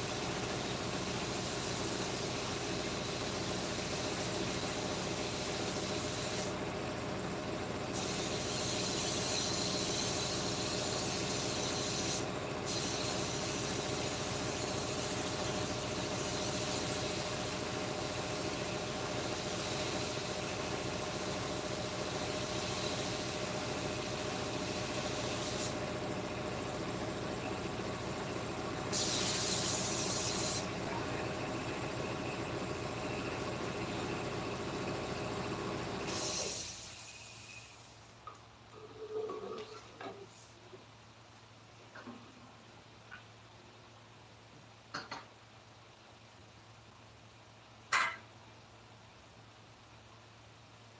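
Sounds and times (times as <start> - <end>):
loud high hiss: 28.9 - 30.8, 36.0 - 38.2.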